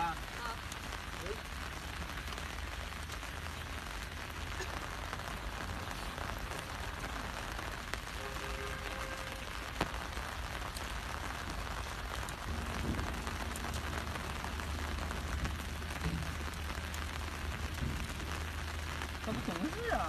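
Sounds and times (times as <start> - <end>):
rain pattering on umbrella: 0.0 - 20.0
low rumble: 11.3 - 19.6.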